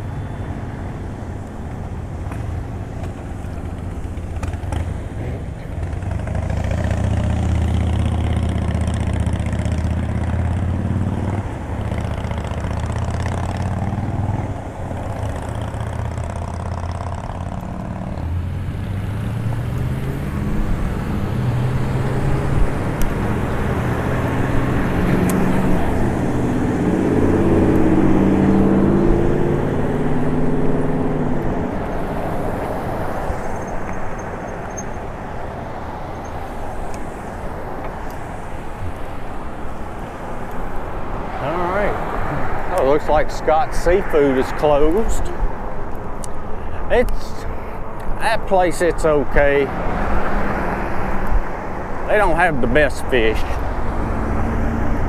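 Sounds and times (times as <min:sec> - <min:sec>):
vehicle engines passing: 0:00.0 - 0:55.0
wind and road noise: 0:00.0 - 0:55.0.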